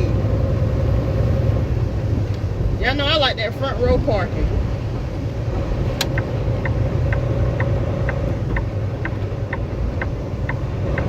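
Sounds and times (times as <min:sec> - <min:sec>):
truck engine rumble: 0:00.0 - 0:11.0
dash flasher ticking: 0:04.9 - 0:11.0.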